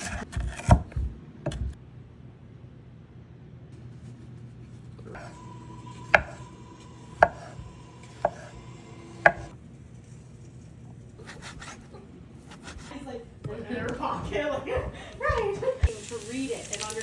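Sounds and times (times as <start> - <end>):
knife chopping on cutting board: 0.0 - 1.8, 6.0 - 6.4, 7.1 - 9.5, 11.2 - 14.0.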